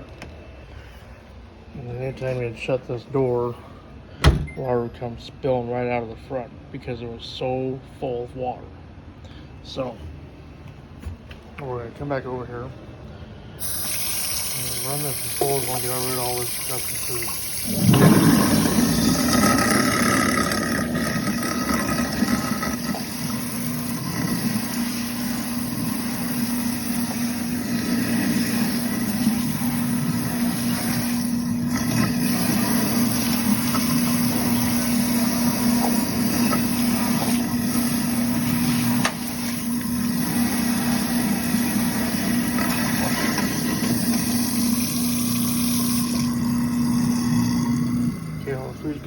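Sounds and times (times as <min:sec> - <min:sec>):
garbage disposal grinding food: 0:13.6 - 0:49.0.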